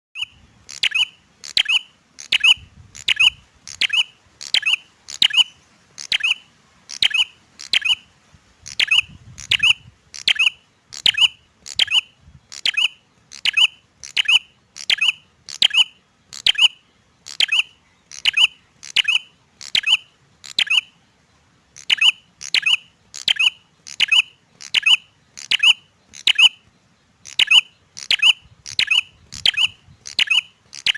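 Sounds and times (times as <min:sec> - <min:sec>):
bird sharp clicking call: 0:21.8 - 0:26.6, 0:27.2 - 0:30.9.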